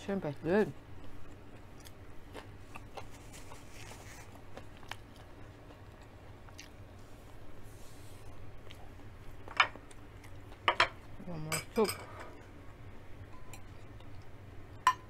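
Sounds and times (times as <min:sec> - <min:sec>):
person chewing: 0:00.8 - 0:10.6.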